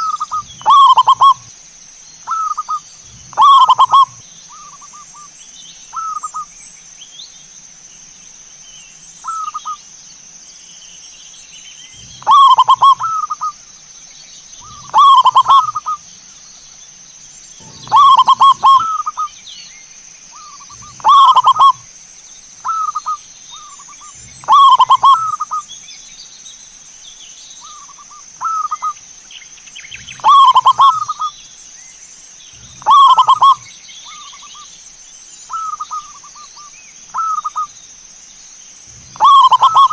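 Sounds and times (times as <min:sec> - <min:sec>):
doves cooing: 0:00.0 - 0:01.5, 0:02.3 - 0:05.0, 0:11.9 - 0:13.6, 0:14.6 - 0:16.1, 0:17.6 - 0:19.4, 0:20.4 - 0:21.9, 0:22.6 - 0:25.7, 0:30.0 - 0:31.4, 0:32.5 - 0:34.6, 0:35.5 - 0:37.7, 0:38.9 - 0:39.9
steady high hiss: 0:00.0 - 0:39.9.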